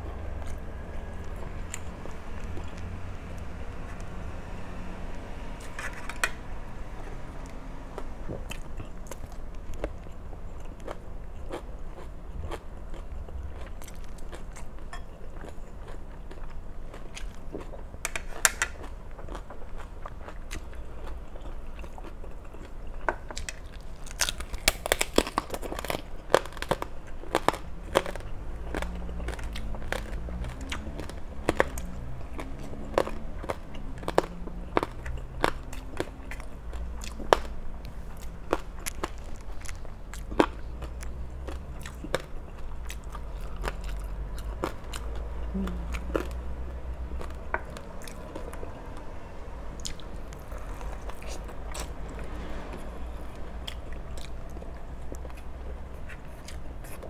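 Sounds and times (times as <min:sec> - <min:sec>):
chewing: 0:08.0 - 0:49.0, 0:49.8 - 0:52.2, 0:53.1 - 0:57.0
crackly crunches: 0:08.4 - 0:45.3.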